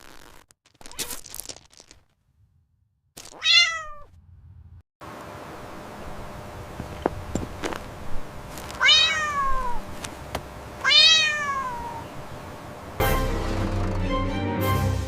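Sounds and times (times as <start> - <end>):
cat meowing: 3.4 - 4.1, 8.8 - 9.8, 10.8 - 12.1
music: 13.0 - 15.0.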